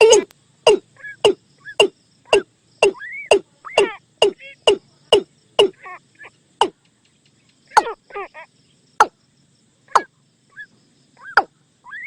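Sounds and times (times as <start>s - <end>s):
watercock calls: 0.0s - 9.2s, 9.9s - 12.0s.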